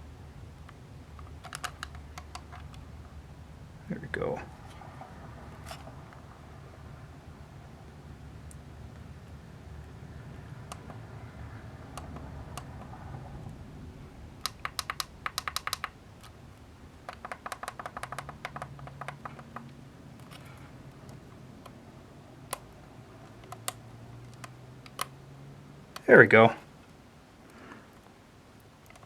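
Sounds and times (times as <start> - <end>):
push buttons clicking: 1.2 - 2.8, 14.4 - 16.4, 17.0 - 21.8, 22.5 - 25.2.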